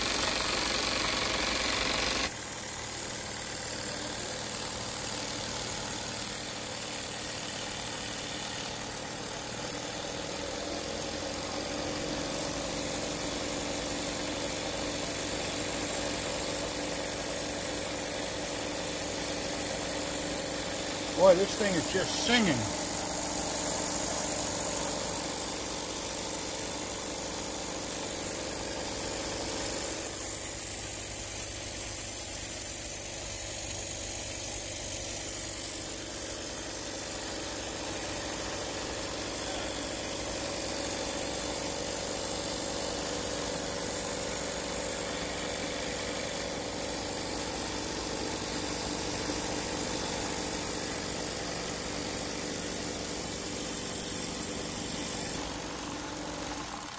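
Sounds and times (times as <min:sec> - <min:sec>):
model steam engine running: 0:00.0 - 0:56.9
small generator whirring: 0:00.0 - 0:56.9
high steam hiss: 0:21.1 - 0:24.1.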